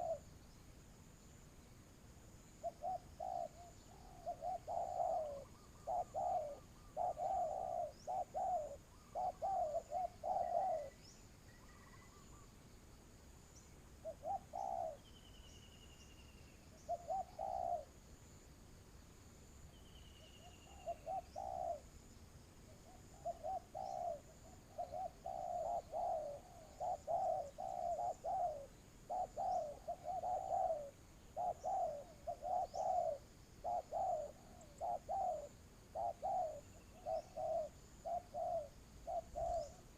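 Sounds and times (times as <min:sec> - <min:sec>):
dove cooing: 0:00.0 - 0:00.3, 0:02.6 - 0:12.4, 0:14.0 - 0:15.1, 0:16.7 - 0:18.0, 0:20.3 - 0:22.0, 0:22.7 - 0:39.9
small birds chirping: 0:00.0 - 0:12.6, 0:13.5 - 0:17.9, 0:19.0 - 0:39.9.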